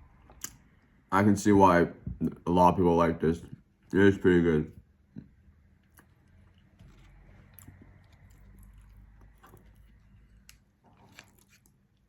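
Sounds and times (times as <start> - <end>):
faint chewing: 4.7 - 12.0.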